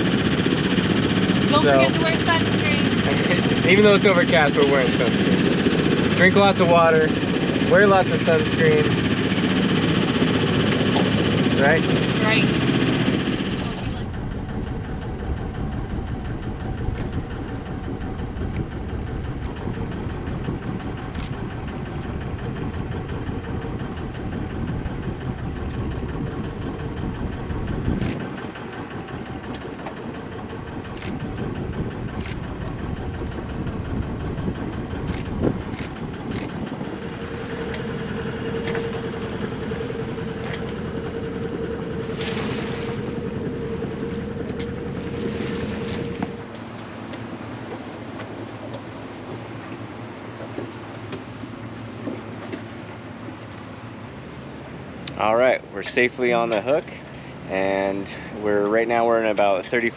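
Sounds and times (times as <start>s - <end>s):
boat engine running: 0.0s - 54.3s
sharp clicks: 13.2s - 37.4s.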